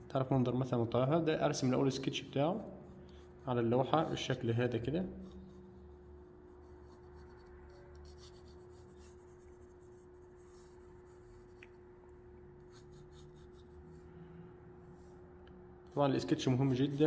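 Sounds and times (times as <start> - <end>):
steady low hum: 0.0 - 17.0
pencil scratching on paper: 5.1 - 11.8, 12.6 - 14.1, 15.9 - 17.0.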